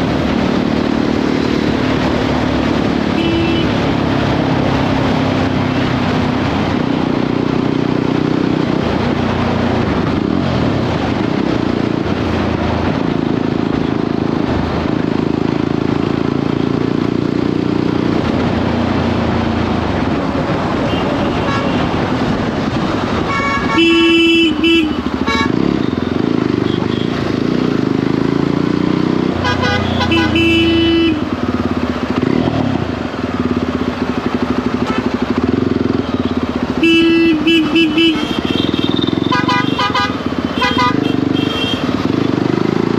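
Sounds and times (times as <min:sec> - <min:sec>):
motorcycle engine: 0:00.0 - 0:42.9
horn tooting: 0:03.1 - 0:03.9, 0:23.2 - 0:27.2, 0:29.4 - 0:31.4, 0:34.8 - 0:35.2, 0:36.0 - 0:42.3.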